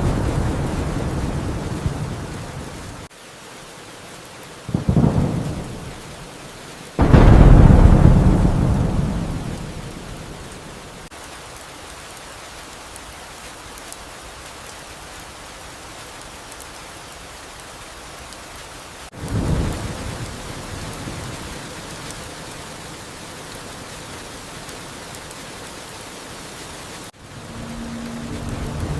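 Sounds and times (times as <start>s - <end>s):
thunder rumbling: 0.0s - 3.1s, 4.7s - 6.2s, 7.0s - 11.1s, 19.2s - 22.5s, 27.2s - 28.9s
steady rain falling: 0.0s - 28.9s.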